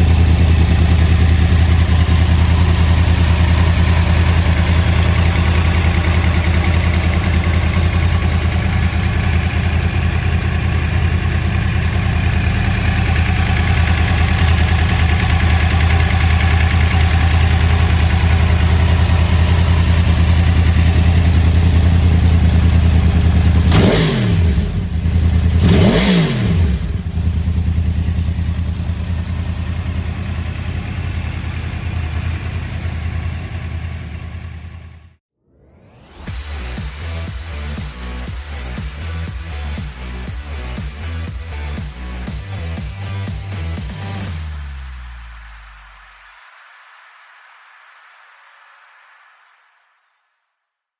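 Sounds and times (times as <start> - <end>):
motorcycle engine idling: 0.0 - 35.2.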